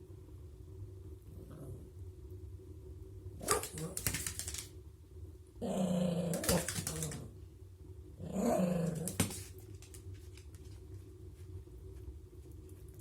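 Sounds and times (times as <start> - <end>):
small dog growling: 1.3 - 2.0, 3.4 - 4.4, 5.6 - 7.4, 8.2 - 9.5.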